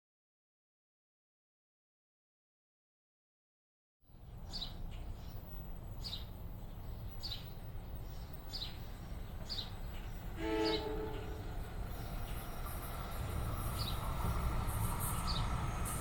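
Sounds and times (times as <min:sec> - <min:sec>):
bird chirping: 0:04.4 - 0:16.0
train horn toot: 0:10.3 - 0:11.6.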